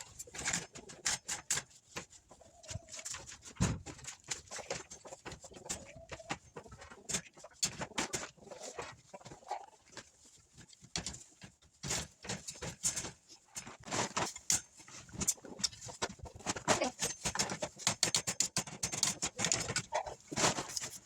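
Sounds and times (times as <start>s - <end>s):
chickens calling softly: 0.0s - 3.5s, 4.2s - 10.4s, 15.0s - 18.0s, 19.0s - 21.0s
sharp clicks and rustles: 9.9s - 21.0s.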